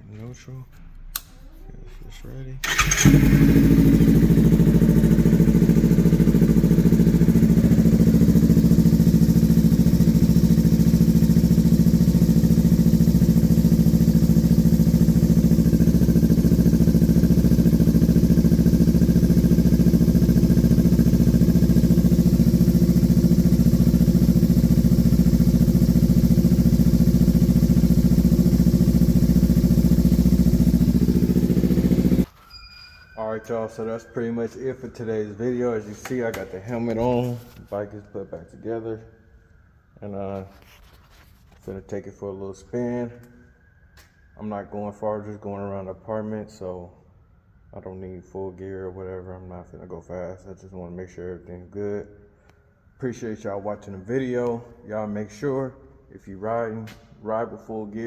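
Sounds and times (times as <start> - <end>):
motorcycle engine idling: 2.6 - 32.3.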